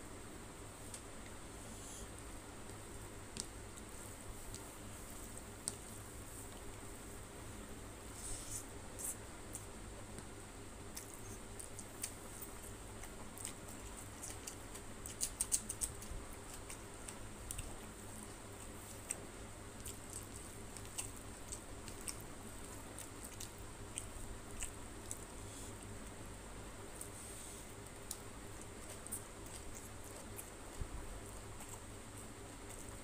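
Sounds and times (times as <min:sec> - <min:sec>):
fingers squishing rice: 0:08.0 - 0:33.0
mouth chewing: 0:10.9 - 0:26.2, 0:26.9 - 0:33.0.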